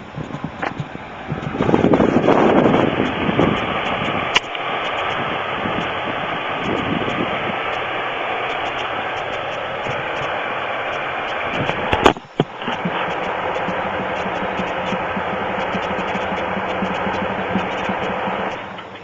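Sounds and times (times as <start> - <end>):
car engine idling: 0.0 - 19.0
faint regular ticking: 6.6 - 19.0.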